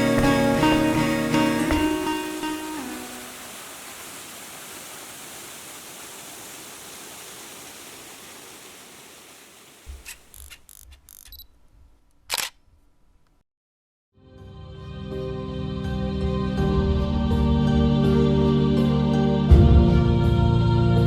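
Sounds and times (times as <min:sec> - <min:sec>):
steady hiss: 0:00.0 - 0:10.2
small clicks: 0:10.0 - 0:11.5, 0:12.1 - 0:12.6.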